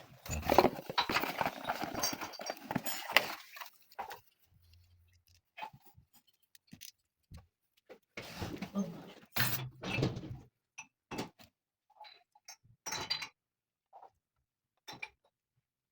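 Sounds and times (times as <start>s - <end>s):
objects rustling and clattering: 0.0s - 10.4s.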